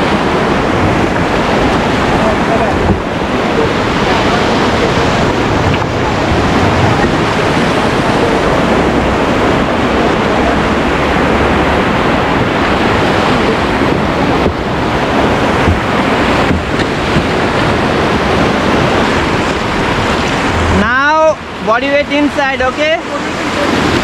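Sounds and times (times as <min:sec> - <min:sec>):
river whitewater rushing: 0:00.0 - 0:24.0
wind buffeting microphone: 0:00.0 - 0:24.0.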